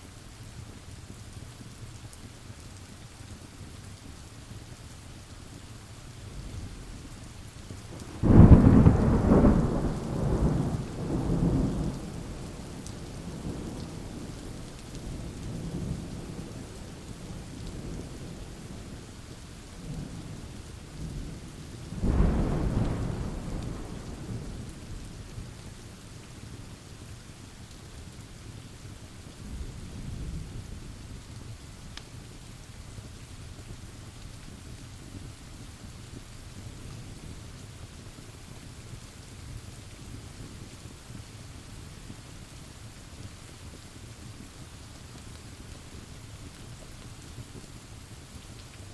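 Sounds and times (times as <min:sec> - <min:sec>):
steady rain pouring: 0:00.0 - 0:48.9
rolling thunder rumbles: 0:07.9 - 0:18.8, 0:19.8 - 0:25.6
thunderclap: 0:08.0 - 0:14.6, 0:22.0 - 0:25.0.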